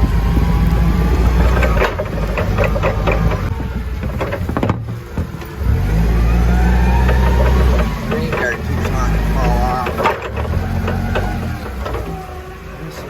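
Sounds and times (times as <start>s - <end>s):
clanks and rattles: 0.0s - 13.0s
work vehicle engine running: 0.0s - 13.0s.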